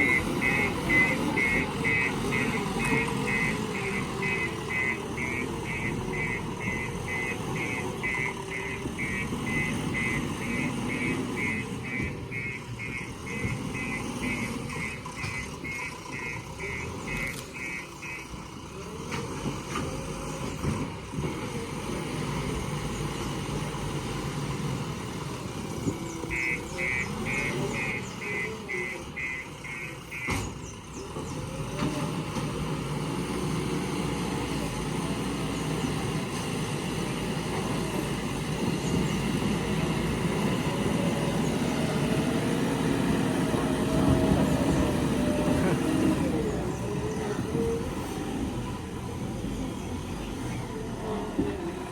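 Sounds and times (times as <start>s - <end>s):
reversing alarm beeping: 0.0s - 18.4s, 26.1s - 30.6s
diesel engines running: 0.0s - 51.9s.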